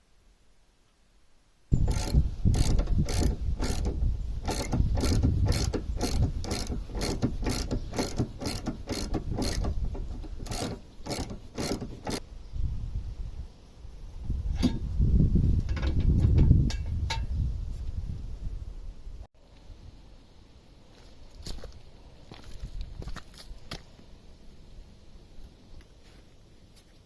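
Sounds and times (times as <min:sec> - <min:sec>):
ratchet tool clicking: 0:01.7 - 0:12.2.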